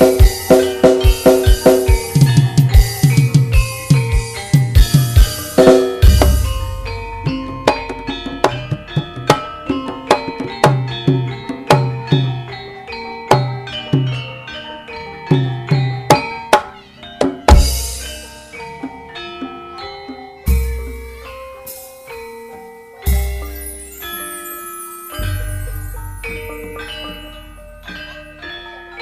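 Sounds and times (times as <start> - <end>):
hand drum strokes: 0.0 - 12.3
metallophones ringing melody: 0.0 - 29.0.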